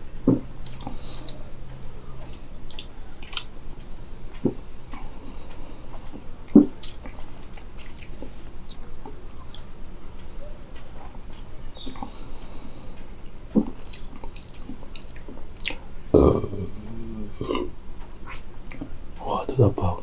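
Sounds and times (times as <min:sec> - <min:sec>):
wet mouth and fizz clicks: 0:00.6 - 0:01.0, 0:06.5 - 0:08.8, 0:13.6 - 0:15.8
person gulping drink: 0:13.6 - 0:17.7.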